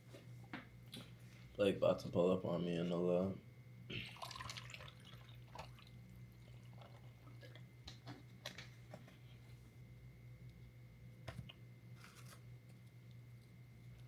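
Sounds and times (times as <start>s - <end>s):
steady low hum: 0.0s - 14.0s
wet chewing and mouth sounds: 5.0s - 8.7s.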